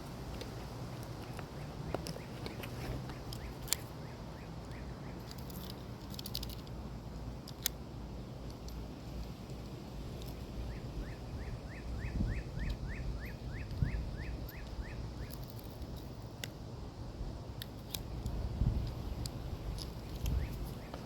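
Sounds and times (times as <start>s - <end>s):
low outdoor rumble: 0.0s - 21.0s
bird chirping: 0.9s - 5.6s, 10.6s - 15.6s, 20.2s - 21.0s.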